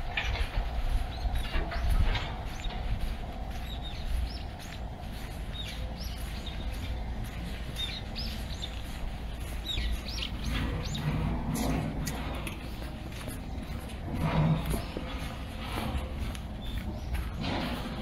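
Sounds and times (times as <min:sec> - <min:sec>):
low city rumble: 0:00.0 - 0:18.0
small birds chirping: 0:00.3 - 0:18.0.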